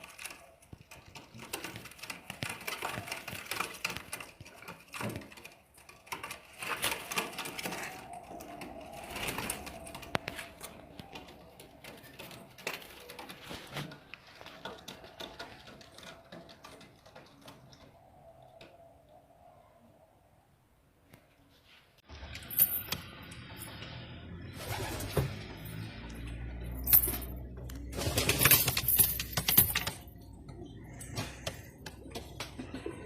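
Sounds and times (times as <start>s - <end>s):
pigeons cooing: 0.0s - 20.2s, 29.0s - 33.0s.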